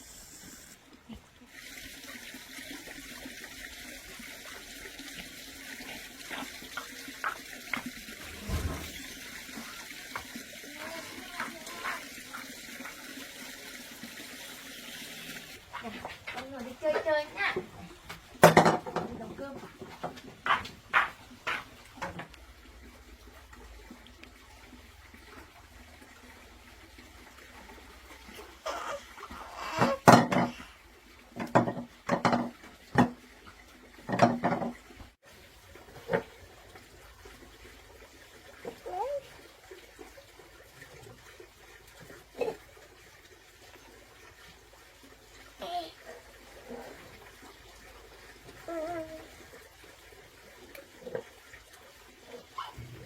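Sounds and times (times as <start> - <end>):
water running: 0.0 - 53.0
dishes and pots clattering: 18.4 - 19.2, 29.8 - 30.6, 31.4 - 33.1, 34.1 - 34.8.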